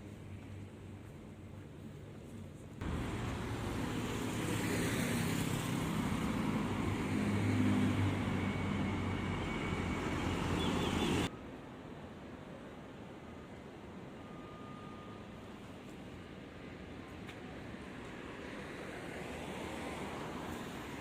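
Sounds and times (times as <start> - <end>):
low engine hum: 0.1 - 11.3
vehicles passing: 2.8 - 11.3.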